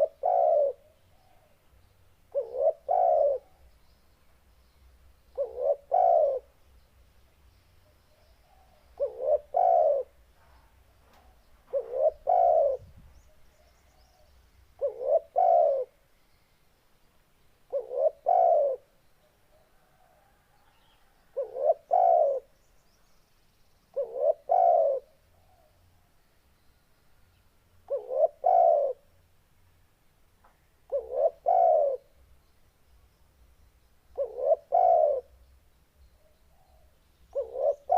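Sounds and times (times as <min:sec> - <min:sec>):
dove cooing: 0:00.0 - 0:01.6, 0:02.3 - 0:03.7, 0:05.3 - 0:06.5, 0:08.4 - 0:10.2, 0:11.2 - 0:16.0, 0:17.7 - 0:18.9, 0:19.5 - 0:22.5, 0:23.9 - 0:25.7, 0:27.9 - 0:29.1, 0:30.9 - 0:32.1, 0:34.1 - 0:35.4, 0:36.2 - 0:37.9.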